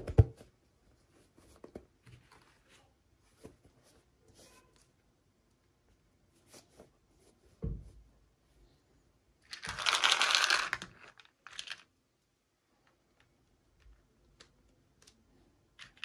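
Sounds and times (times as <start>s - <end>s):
soft thump: 7.6s - 7.9s.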